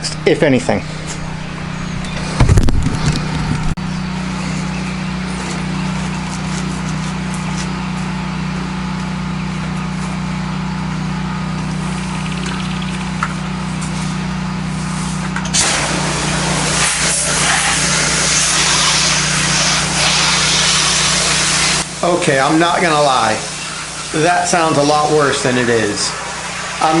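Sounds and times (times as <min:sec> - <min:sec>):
pressure washer engine running: 0:00.0 - 0:27.0
low thump: 0:02.4 - 0:03.6.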